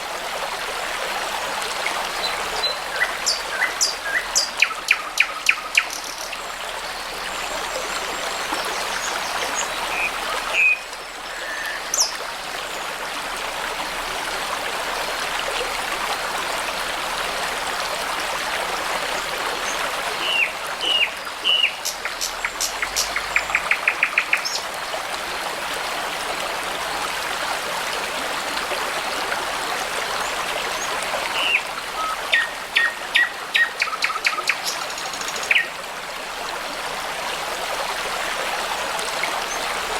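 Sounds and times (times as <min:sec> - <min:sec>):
babbling brook: 0:00.0 - 0:39.9
songbirds singing: 0:01.8 - 0:07.4, 0:19.6 - 0:24.7, 0:30.0 - 0:35.8.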